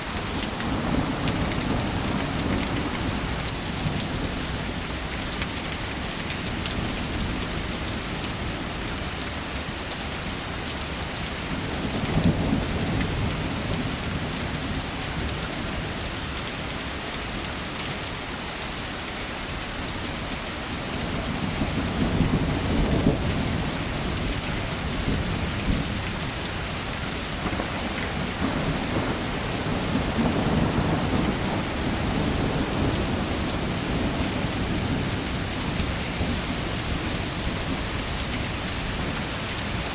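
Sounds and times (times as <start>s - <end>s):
heavy rain: 0.0s - 39.9s
low thunder rumbles: 21.1s - 39.9s.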